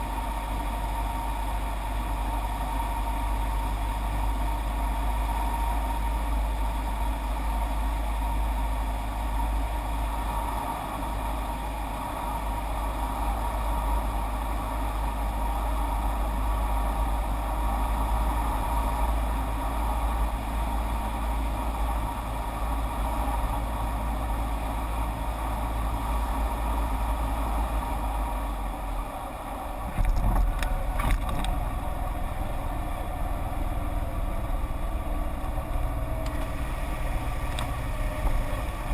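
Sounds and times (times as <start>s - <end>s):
propeller aircraft engine drone: 0.0s - 38.9s
wind rumbling on microphone: 9.3s - 38.9s.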